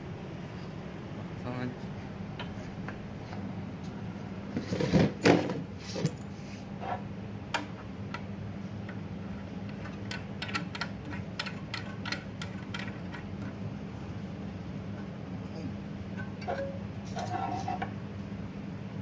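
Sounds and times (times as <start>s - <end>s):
steady low hum: 0.0s - 19.0s
rubbing and knocking of small parts: 9.7s - 13.6s.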